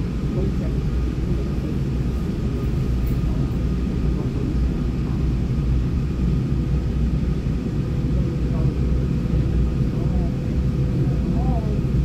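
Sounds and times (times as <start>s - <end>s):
train car low rumble: 0.0s - 12.0s.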